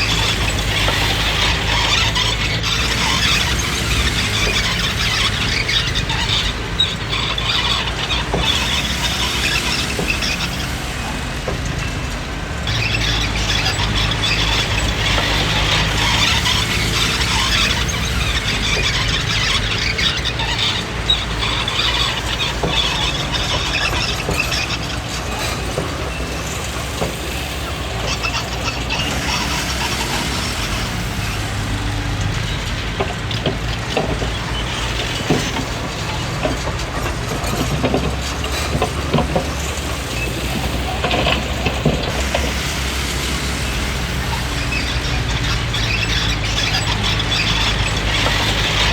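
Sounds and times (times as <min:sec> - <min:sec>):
bulldozer tracks clanking: 0:00.0 - 0:48.9
diesel engine running: 0:00.0 - 0:48.9
high-pitched squeal: 0:12.6 - 0:36.8, 0:39.4 - 0:48.9.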